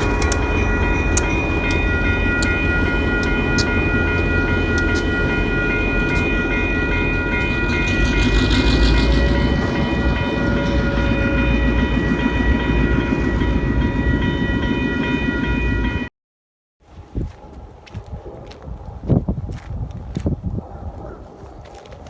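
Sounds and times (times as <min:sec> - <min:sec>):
crossing warning bell ringing: 0:00.0 - 0:16.1
train rumbling on rails: 0:00.0 - 0:16.1.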